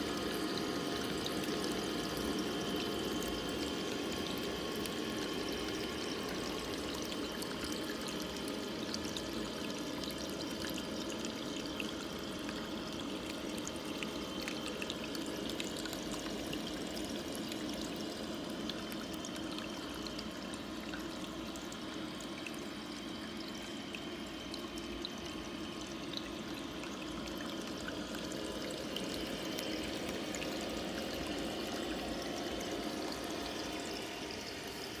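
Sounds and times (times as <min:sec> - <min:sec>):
small waterfall pouring: 0:23.4 - 0:35.0.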